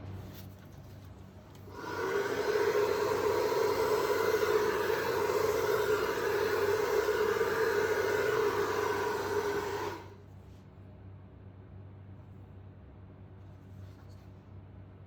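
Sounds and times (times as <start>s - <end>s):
hair dryer running: 1.7s - 10.2s.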